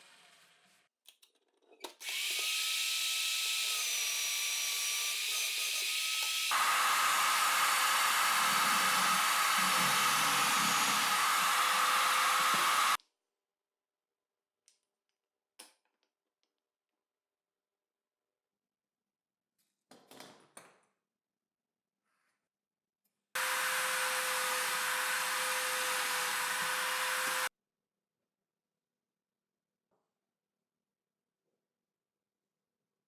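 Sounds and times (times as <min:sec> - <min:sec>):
drill bit boring into wood: 0:02.1 - 0:13.0, 0:23.4 - 0:27.5
electric drill motor whine: 0:02.1 - 0:13.0, 0:23.4 - 0:27.5.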